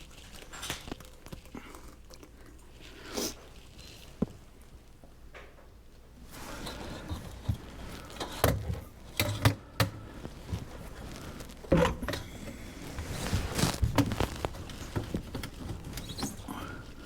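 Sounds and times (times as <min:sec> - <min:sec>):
scraping of plumbing parts: 0:06.2 - 0:17.0.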